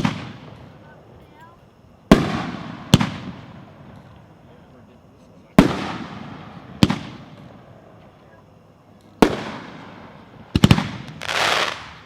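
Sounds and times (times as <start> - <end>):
fireworks bangs with echoes: 0.0 - 0.6, 2.1 - 4.0, 5.6 - 7.4, 9.2 - 12.0
fireworks rushing: 9.2 - 12.0.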